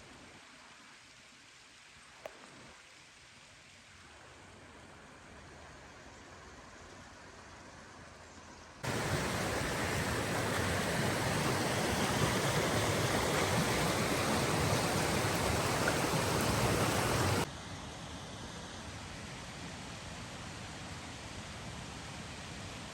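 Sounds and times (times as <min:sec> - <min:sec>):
faint water hiss: 0:00.0 - 0:22.9
water rushing: 0:08.8 - 0:17.5.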